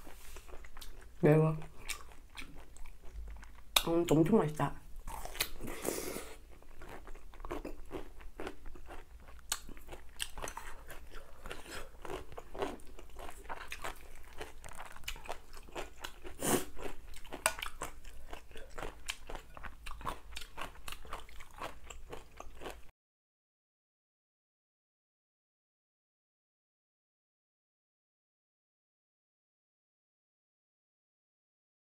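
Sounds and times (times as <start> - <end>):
crisp crunching and chewing: 0.0 - 3.9, 5.0 - 22.9.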